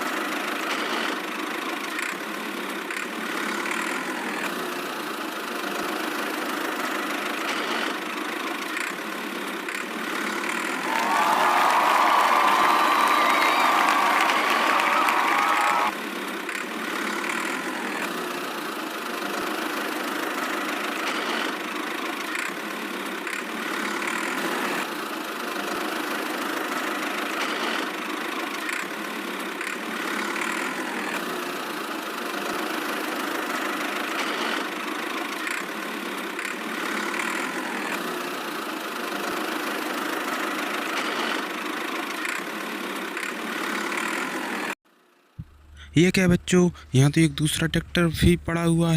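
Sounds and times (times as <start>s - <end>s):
tractor engine idling: 45.4s - 48.9s.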